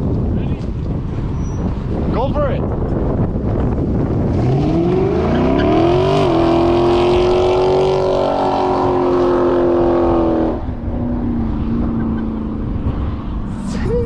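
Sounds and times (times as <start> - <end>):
car engine revving: 3.3 - 14.0.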